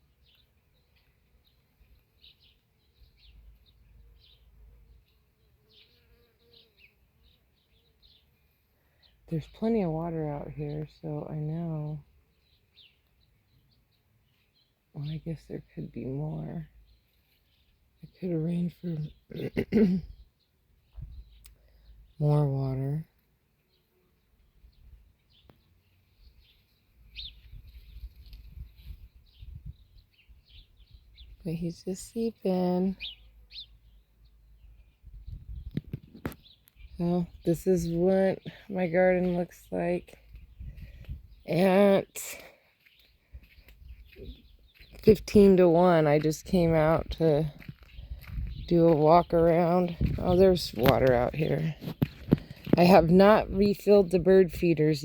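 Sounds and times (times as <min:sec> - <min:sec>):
birds chirping: 0:00.0 - 0:55.0
bee buzzing: 0:04.7 - 0:08.2.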